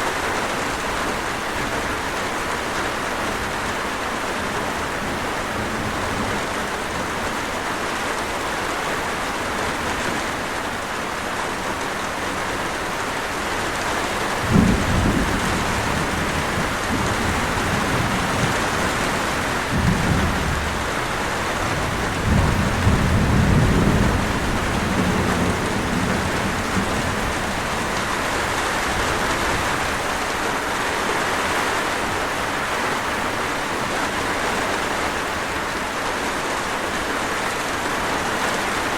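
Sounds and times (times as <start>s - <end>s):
steady rain: 0.0s - 38.9s
thunder rumbling: 13.8s - 30.3s.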